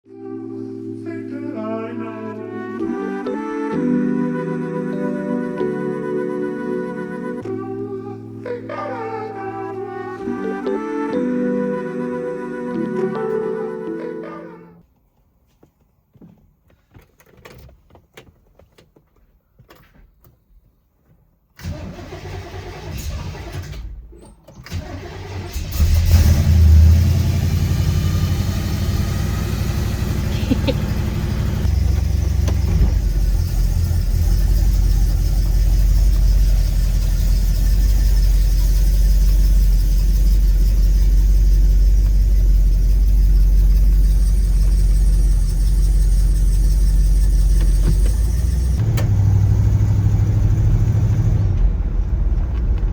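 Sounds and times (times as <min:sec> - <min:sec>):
car engine starting and idling: 0:21.6 - 0:52.9.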